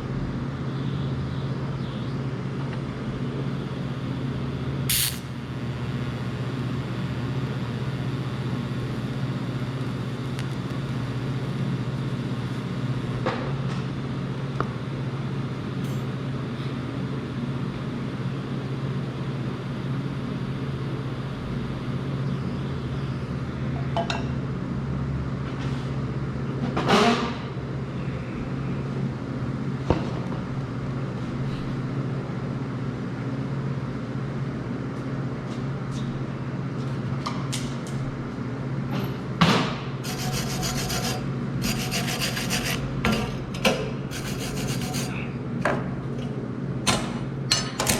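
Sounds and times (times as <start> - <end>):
welder humming and buzzing: 1.9 - 23.6, 39.2 - 45.3.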